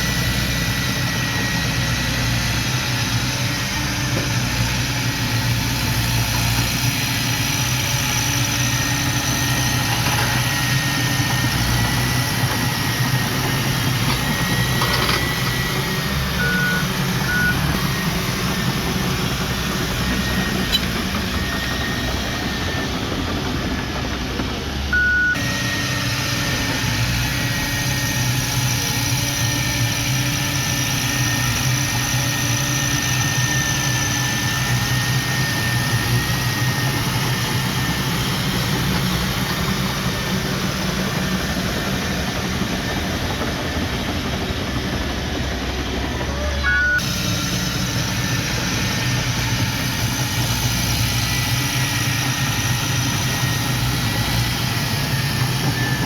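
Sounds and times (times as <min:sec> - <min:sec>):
heavy machinery engine running: 0:00.0 - 0:56.0
short electronic beeps: 0:25.0 - 0:25.4, 0:46.6 - 0:47.0.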